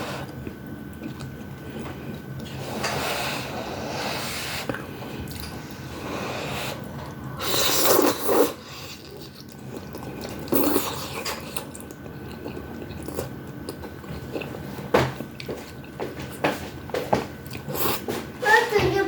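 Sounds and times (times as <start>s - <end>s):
slurping and chewing noodles: 0.0s - 18.3s.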